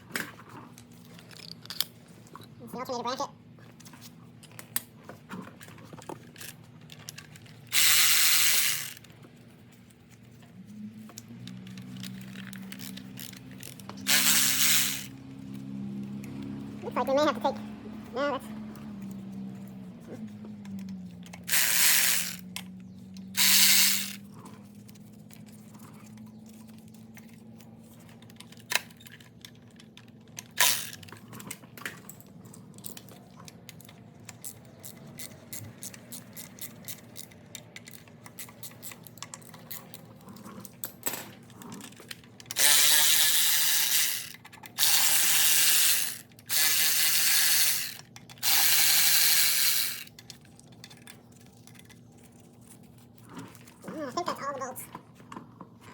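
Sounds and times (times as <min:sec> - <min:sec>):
ratchet wrench ratcheting: 0:07.7 - 0:09.1, 0:11.5 - 0:15.5, 0:21.2 - 0:22.6, 0:23.3 - 0:24.4, 0:30.5 - 0:31.1, 0:33.7 - 0:40.0, 0:41.8 - 0:51.1.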